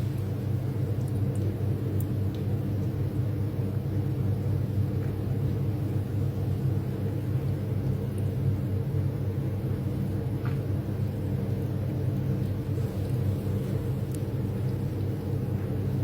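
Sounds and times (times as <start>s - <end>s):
kitchen appliance humming: 0.0s - 16.0s.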